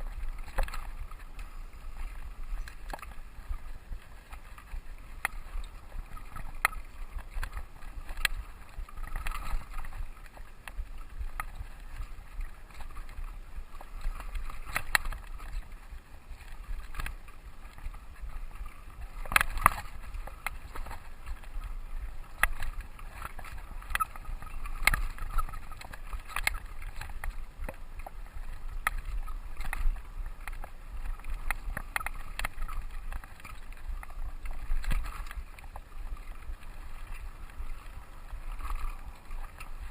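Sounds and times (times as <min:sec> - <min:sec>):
wind rumble on microphone: 0:00.0 - 0:39.9
bike frame and chain rattling: 0:19.2 - 0:27.4.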